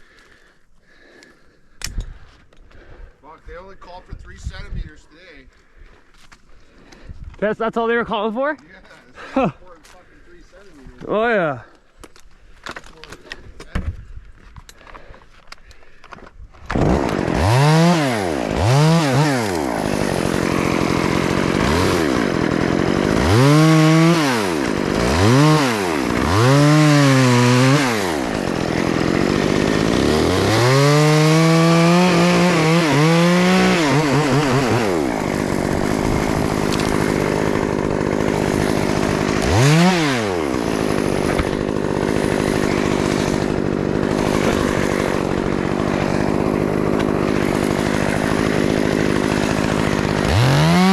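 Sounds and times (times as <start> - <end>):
chainsaw revving and idling: 16.7 - 50.9.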